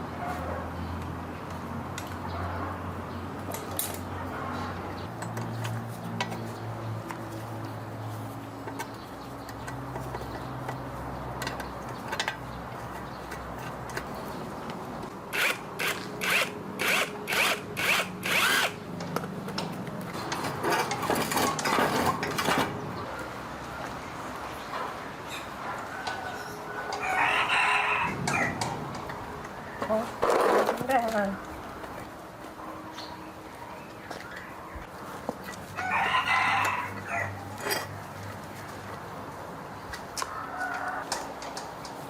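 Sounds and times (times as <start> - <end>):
power drill running: 15.3 - 18.8.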